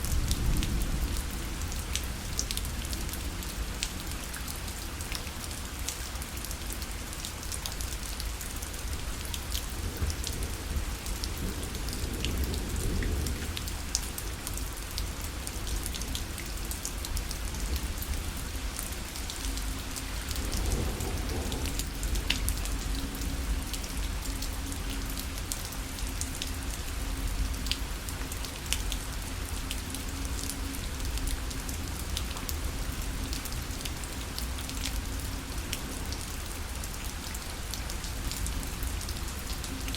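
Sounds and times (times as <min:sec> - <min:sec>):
rain pattering on fabric: 0:00.0 - 0:39.9.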